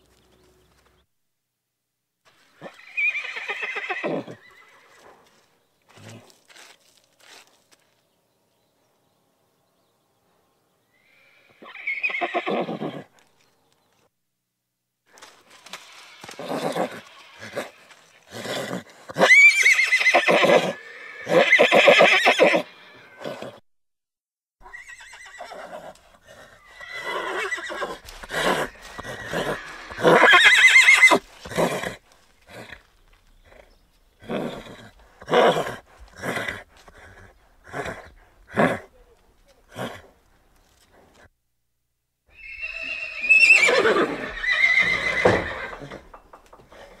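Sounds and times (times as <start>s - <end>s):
horses whinnying: 2.6s - 5.0s, 11.0s - 13.1s, 15.2s - 23.6s, 24.6s - 38.9s, 42.3s - 47.0s.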